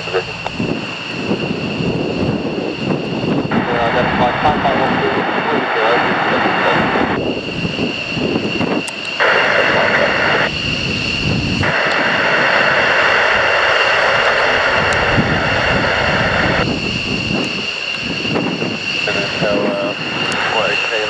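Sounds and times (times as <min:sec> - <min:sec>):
radio hiss: 0:00.0 - 0:00.6, 0:03.5 - 0:07.2, 0:08.9 - 0:10.5, 0:11.6 - 0:16.6, 0:18.9 - 0:21.0
jet engines whining: 0:00.0 - 0:21.0.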